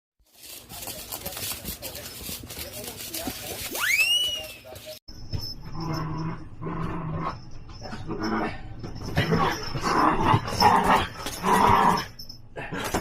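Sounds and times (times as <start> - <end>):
puppy growling and barking: 5.8 - 7.5, 9.2 - 12.2.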